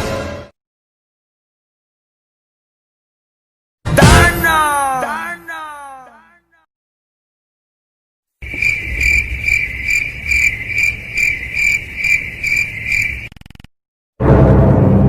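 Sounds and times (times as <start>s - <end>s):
cricket chirping: 8.4s - 13.7s.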